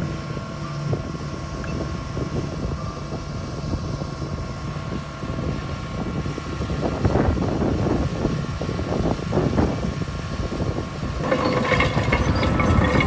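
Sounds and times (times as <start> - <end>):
bulldozer diesel engine rumbling: 10.8 - 13.0
metallic clanks: 11.2 - 13.0.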